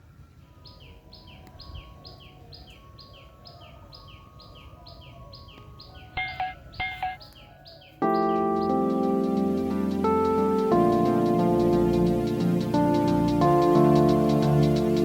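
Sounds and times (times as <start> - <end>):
bird two-part falling chirp: 5.4 - 8.4.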